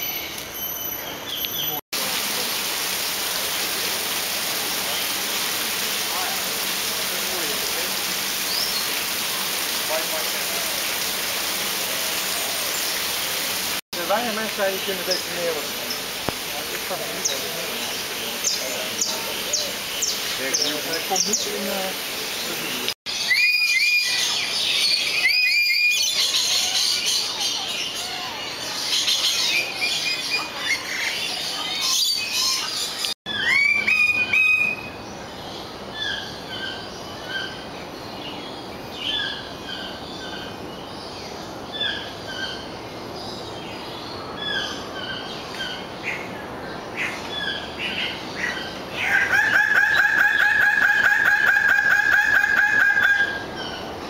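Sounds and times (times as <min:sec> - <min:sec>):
birds chirping: 0:06.1 - 0:54.0
rising whistled bird calls: 0:23.1 - 0:27.1, 0:31.8 - 0:35.0.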